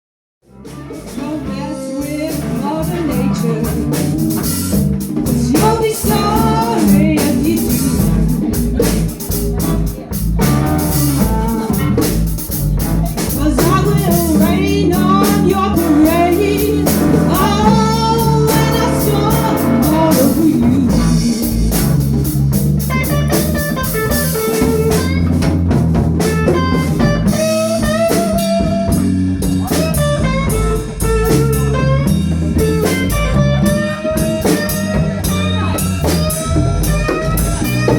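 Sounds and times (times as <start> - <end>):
bass guitar: 0.4 - 37.9
drum kit: 0.4 - 37.9
electric guitar: 0.5 - 37.9
person singing: 0.9 - 10.0, 13.2 - 22.0.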